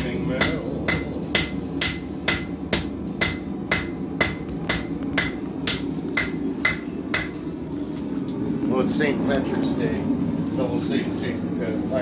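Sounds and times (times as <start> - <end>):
hammer striking anvil: 0.0 - 7.4
steady low hum: 0.0 - 12.0.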